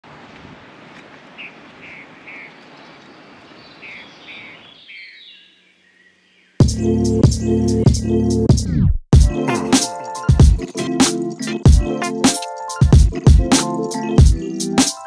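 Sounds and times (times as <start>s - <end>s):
steady outdoor hiss: 0.0s - 6.6s
bird chirping: 1.3s - 6.6s.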